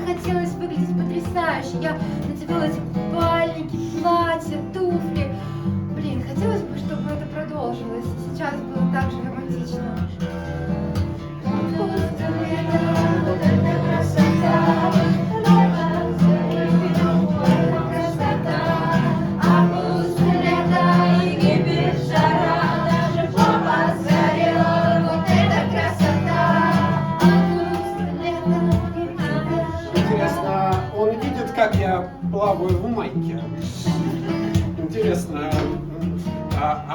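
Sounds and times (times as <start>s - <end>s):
plucked guitar chords: 0.0s - 36.9s
person singing: 11.5s - 32.6s.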